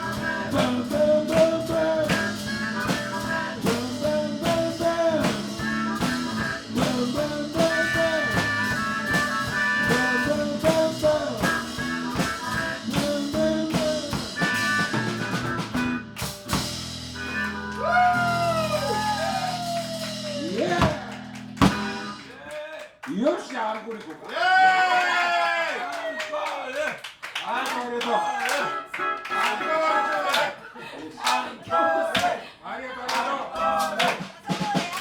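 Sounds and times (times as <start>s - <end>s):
bent guitar notes: 0.0s - 22.3s
blues band playing: 0.0s - 22.4s, 28.7s - 29.7s.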